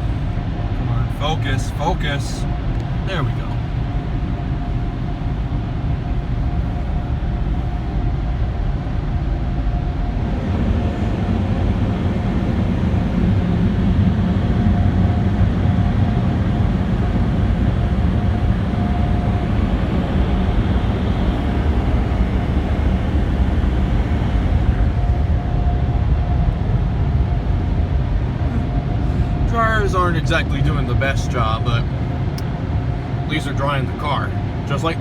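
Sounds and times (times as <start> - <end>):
dryer blowers rushing air: 0.0 - 35.0
steady whine: 0.0 - 35.0.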